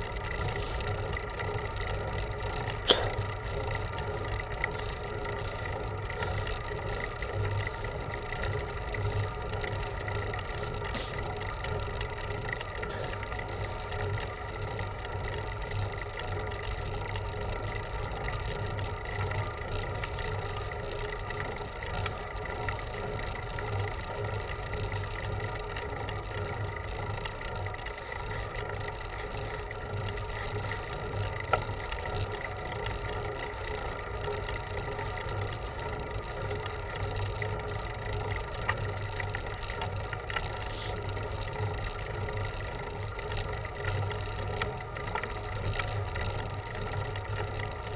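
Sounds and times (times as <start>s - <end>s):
wind and bicycle road noise: 0.0s - 47.9s
sharp click: 2.9s - 3.2s.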